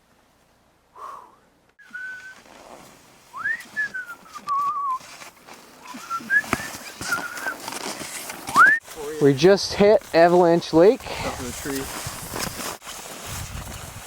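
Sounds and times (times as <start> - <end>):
person whistling a tune: 1.8 - 2.4, 3.3 - 5.0, 5.9 - 7.6, 8.5 - 8.8.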